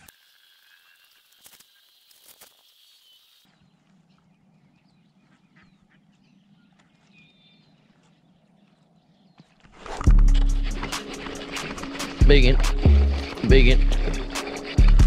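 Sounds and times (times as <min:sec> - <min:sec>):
faint bird calls: 0:02.7 - 0:09.7.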